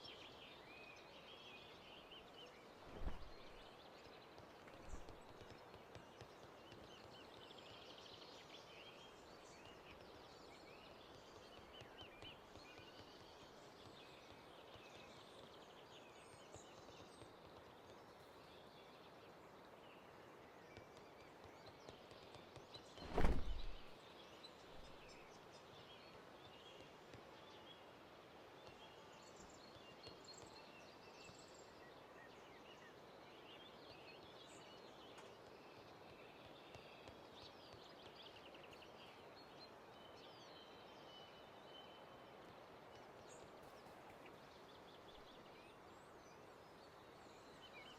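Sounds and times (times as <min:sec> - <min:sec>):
steady low hiss: 0:23.0 - 0:24.0.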